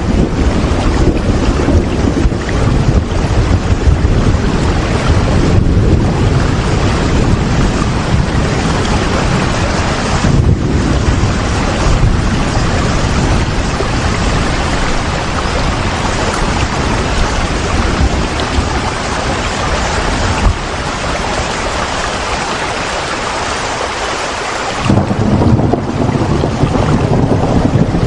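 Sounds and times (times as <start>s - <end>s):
steady rain hiss: 0.0s - 28.0s
wind rumble: 0.0s - 28.0s.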